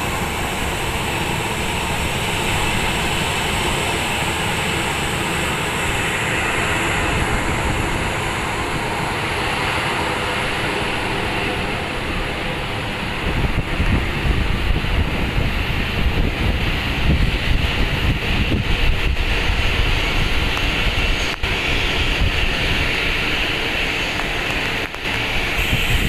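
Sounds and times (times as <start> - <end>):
jet engines: 0.0 - 26.0
wind buffeting microphone: 0.0 - 26.0
heavy rain hissing: 19.4 - 26.0.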